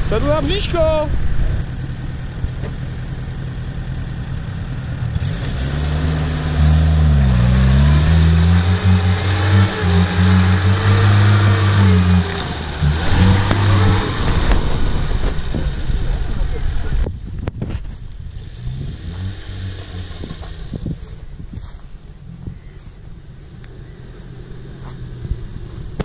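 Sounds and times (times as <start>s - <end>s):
car engine revving hard: 5.0s - 17.1s, 18.4s - 20.9s.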